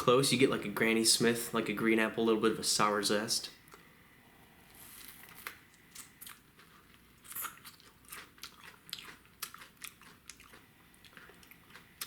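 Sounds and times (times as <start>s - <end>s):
person chewing crunchy food: 5.0s - 12.0s.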